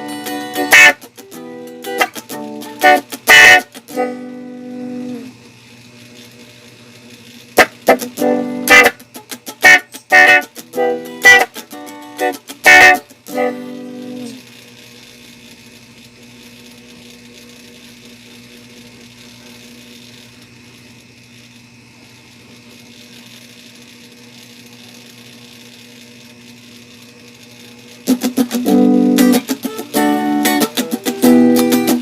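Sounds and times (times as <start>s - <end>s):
electric guitar with auto-wah: 0.0s - 6.5s, 7.1s - 20.6s, 27.5s - 32.0s
guitar amp hum and hiss: 0.0s - 32.0s.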